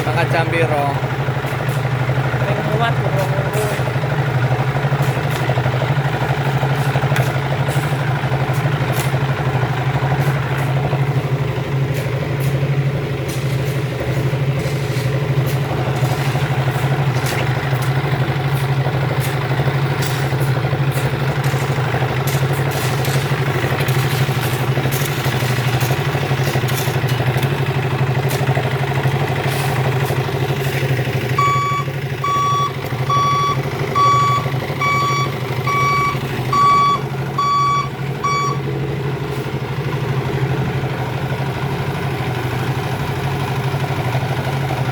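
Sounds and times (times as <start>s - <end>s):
diesel truck engine running: 0.0s - 44.9s
reversing alarm beeping: 31.3s - 38.7s.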